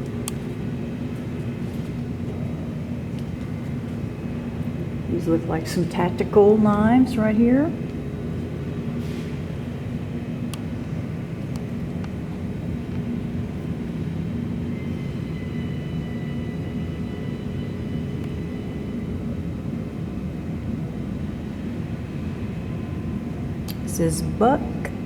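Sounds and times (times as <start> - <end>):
machinery humming: 0.0 - 25.0
faint high whine: 9.6 - 25.0.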